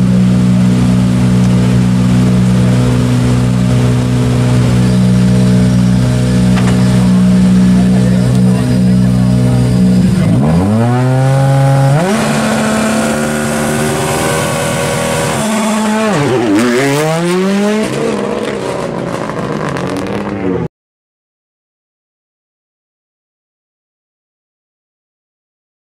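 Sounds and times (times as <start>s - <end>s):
rally car engine revving: 0.0s - 20.7s.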